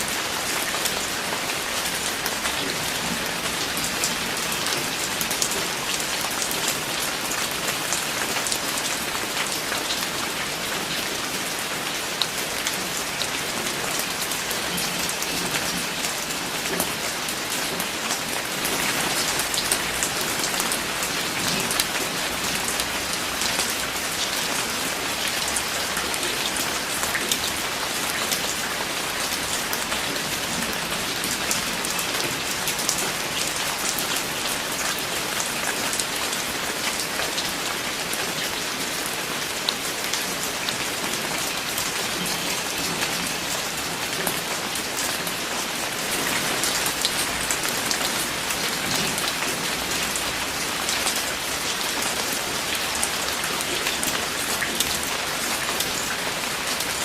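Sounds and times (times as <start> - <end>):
rain drops pattering: 0.0 - 57.0.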